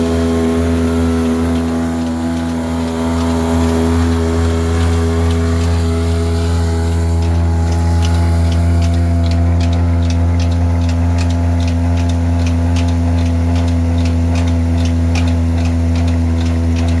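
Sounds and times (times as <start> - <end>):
diesel engine humming: 0.0 - 17.0
regular light clicking: 6.4 - 17.0.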